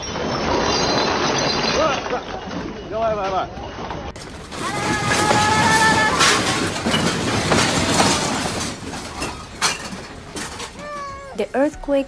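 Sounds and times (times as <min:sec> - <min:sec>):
rattling and clattering knocks: 0:04.2 - 0:11.9.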